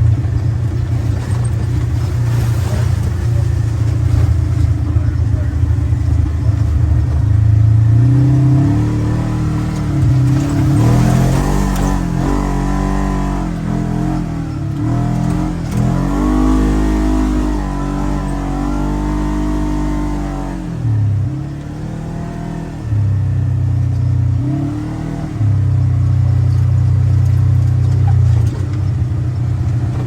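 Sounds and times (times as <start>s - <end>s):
engine revving under load: 0.8s - 30.0s.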